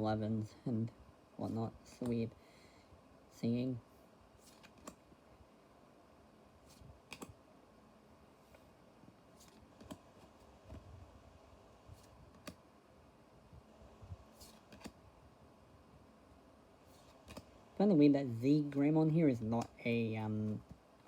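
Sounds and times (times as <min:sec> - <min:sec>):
trading cards clicking: 0:07.0 - 0:07.4.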